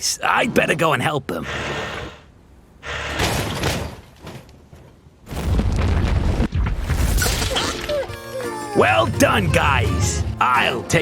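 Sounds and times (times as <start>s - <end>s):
cartoon booms and rumbling: 5.3s - 7.7s.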